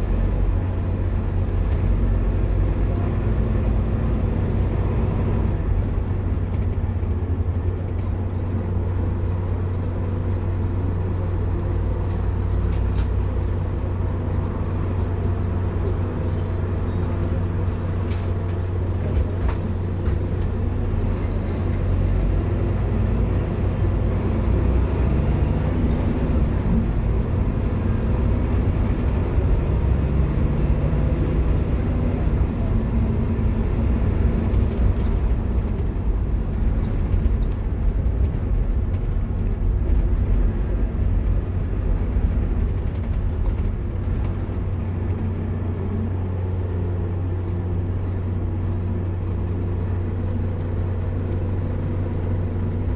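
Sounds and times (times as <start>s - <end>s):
bus body rattles: 0.0s - 52.9s
bus engine drone: 0.0s - 52.9s.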